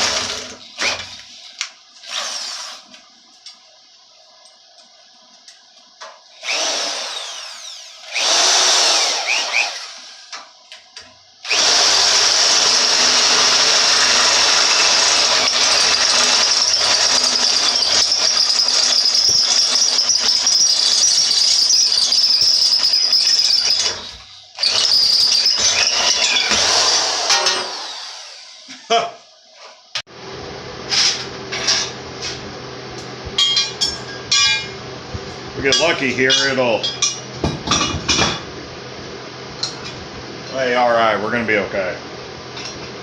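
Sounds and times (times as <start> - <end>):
power drill whining under load: 2.0 - 2.9, 6.4 - 10.4, 11.4 - 28.7.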